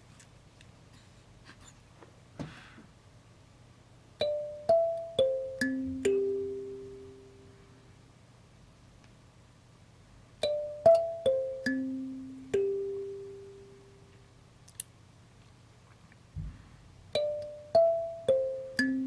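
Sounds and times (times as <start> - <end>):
soft low thump: 16.4 - 16.8.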